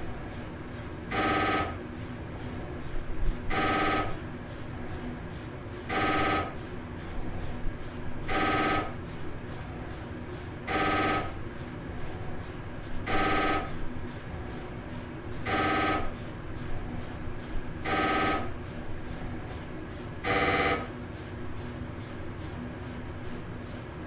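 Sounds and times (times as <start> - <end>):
telephone ringing in buzzing bursts: 1.1 - 1.8, 3.5 - 4.2, 5.9 - 6.6, 8.3 - 9.0, 10.6 - 11.4, 13.0 - 13.8, 15.4 - 16.2, 17.8 - 19.2, 20.2 - 21.0.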